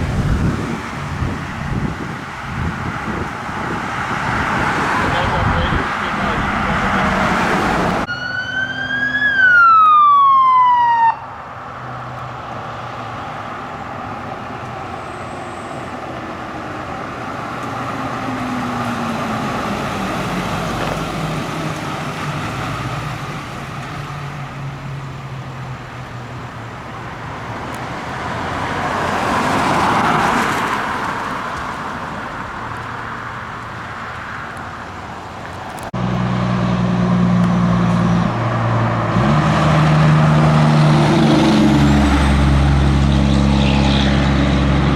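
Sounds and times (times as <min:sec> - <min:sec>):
road and heavy engine noise: 0:00.0 - 0:44.9
emergency siren wailing: 0:04.3 - 0:22.5.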